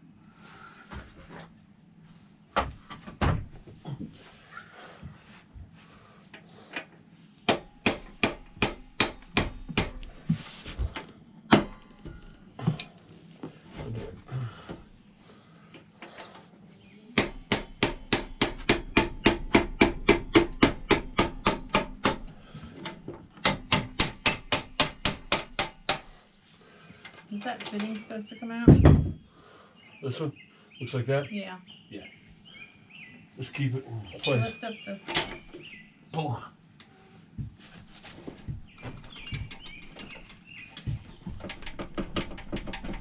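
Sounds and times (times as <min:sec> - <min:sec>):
scattered knocks: 0:38.5 - 0:43.0.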